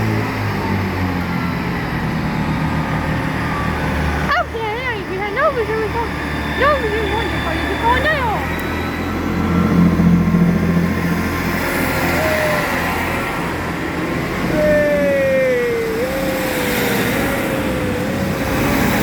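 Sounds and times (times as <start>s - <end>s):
road vehicle drone: 0.0s - 19.0s
wavering tone: 14.5s - 19.0s.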